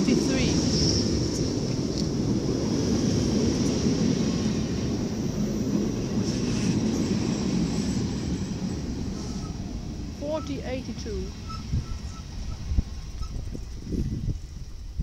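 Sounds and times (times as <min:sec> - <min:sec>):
electric train rolling slowly: 0:00.0 - 0:15.0.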